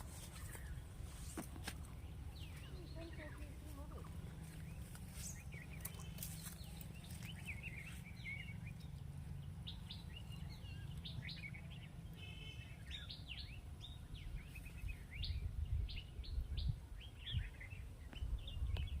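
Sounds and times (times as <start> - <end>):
small birds chirping and trilling: 0.0 - 19.0
low gusty rumble: 12.9 - 19.0.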